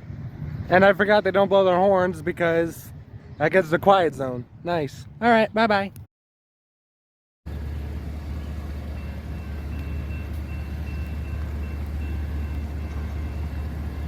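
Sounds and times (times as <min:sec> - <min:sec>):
diesel locomotives rumbling: 0:07.5 - 0:14.0.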